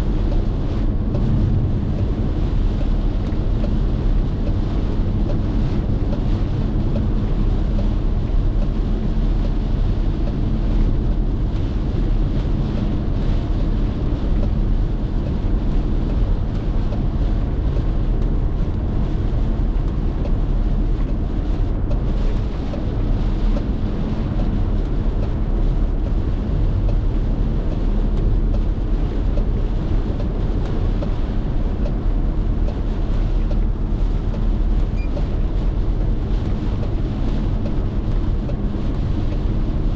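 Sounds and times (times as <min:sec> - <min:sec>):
tyres rumbling on road: 0:00.0 - 0:39.9.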